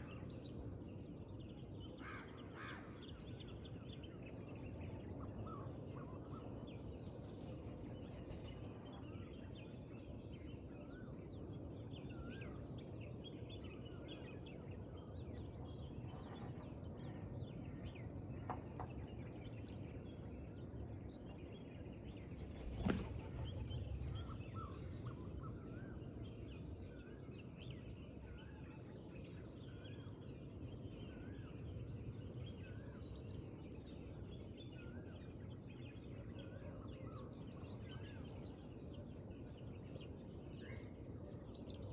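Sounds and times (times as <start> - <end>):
small birds chirping: 22.1 - 25.6.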